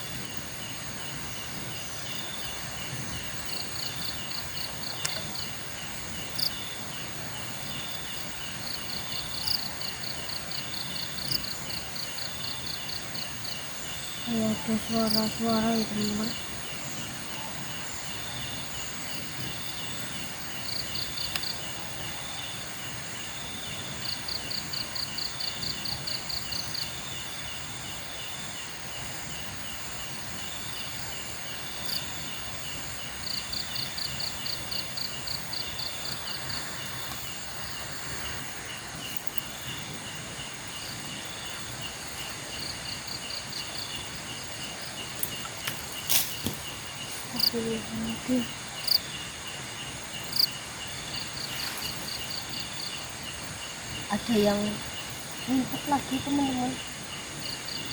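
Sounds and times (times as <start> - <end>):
insect chorus: 0.0 - 57.9.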